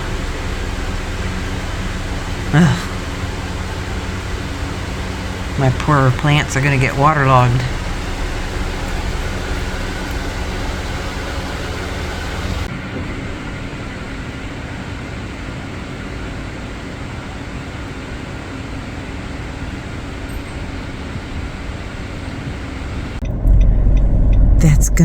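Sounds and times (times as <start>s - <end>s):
car road noise from inside: 0.0s - 12.7s, 20.6s - 25.0s
rain falling: 0.0s - 12.7s.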